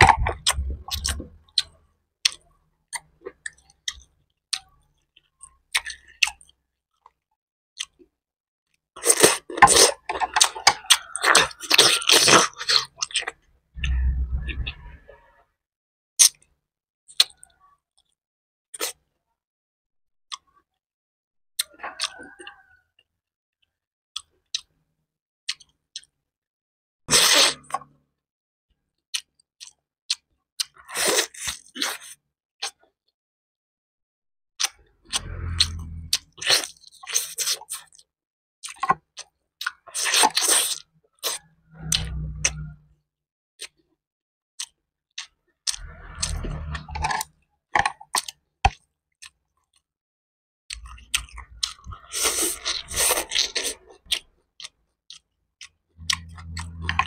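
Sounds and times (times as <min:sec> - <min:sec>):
person chewing and crunching: 0:00.0 - 0:07.2, 0:09.0 - 0:15.0, 0:25.5 - 0:26.2, 0:29.1 - 0:32.9, 0:34.6 - 0:42.8, 0:44.6 - 0:49.8, 0:50.7 - 0:57.0.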